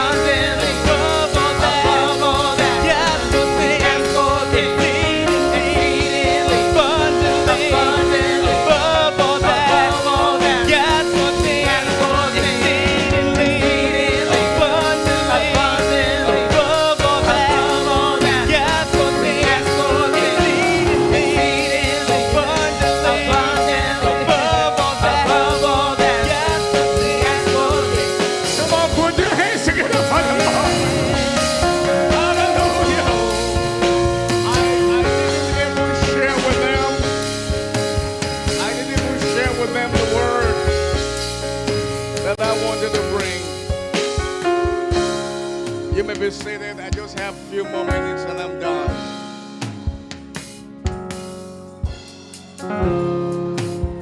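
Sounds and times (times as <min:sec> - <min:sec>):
group singing worship song: 0:00.0 - 0:41.3
steady bass: 0:00.0 - 0:43.8
drum beat: 0:00.0 - 0:45.2
instrumental backing: 0:00.0 - 0:54.0.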